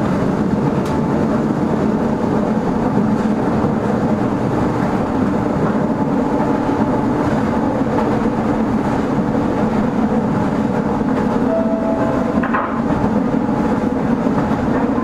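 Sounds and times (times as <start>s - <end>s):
train wheels and motors rumbling: 0.0s - 15.0s
short higher tone: 11.4s - 12.5s.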